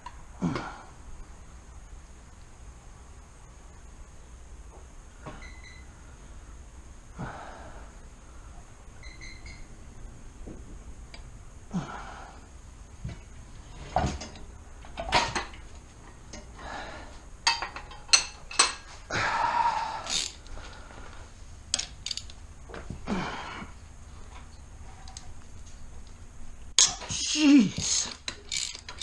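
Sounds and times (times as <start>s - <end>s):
metal tools clinking: 27.9s - 29.0s.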